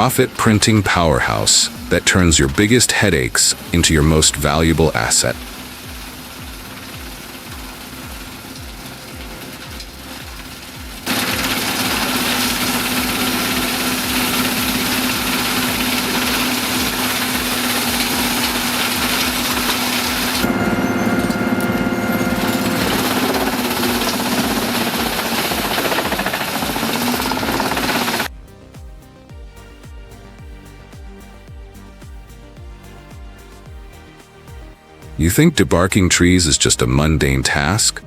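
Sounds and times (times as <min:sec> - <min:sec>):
engine hum: 0:00.0 - 0:37.8
faint background music: 0:00.0 - 0:38.0
wood chipper shredding wood: 0:00.9 - 0:28.3.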